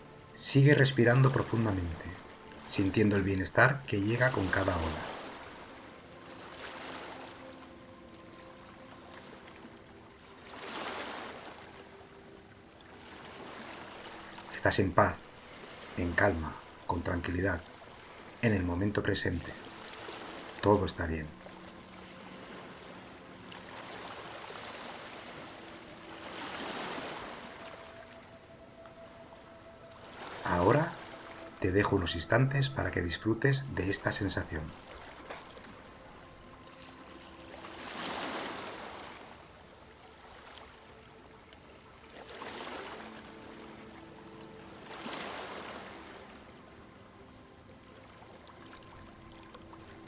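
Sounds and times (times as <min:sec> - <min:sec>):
sea waves washing ashore: 0:00.0 - 0:50.0.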